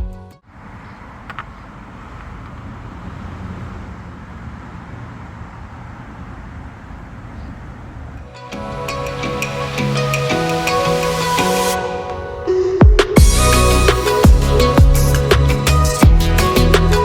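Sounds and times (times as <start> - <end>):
small car engine running: 0.4 - 8.3
light clicks: 0.8 - 2.7.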